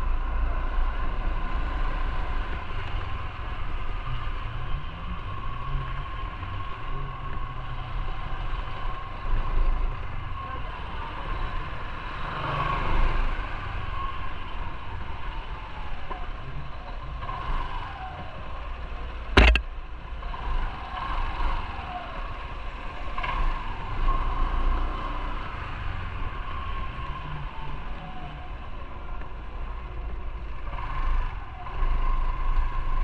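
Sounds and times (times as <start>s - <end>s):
road and wind noise: 0.0s - 33.0s
motorcycle engine rumble: 17.9s - 24.1s
sharp knock: 19.4s - 19.6s.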